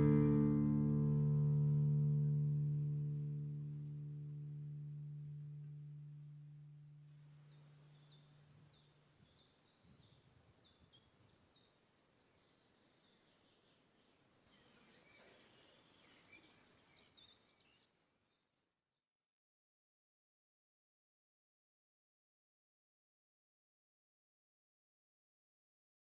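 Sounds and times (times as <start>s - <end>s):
birds chirping: 7.0s - 18.6s.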